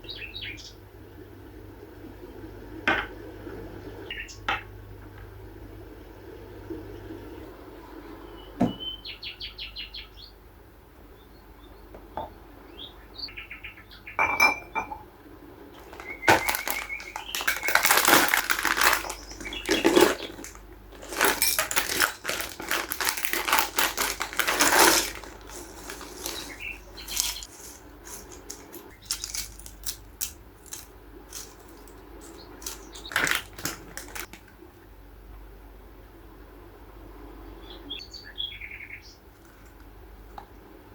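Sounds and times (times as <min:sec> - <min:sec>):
rustling of packaging: 0:15.8 - 0:34.6
small items clicking and clattering: 0:15.8 - 0:34.6.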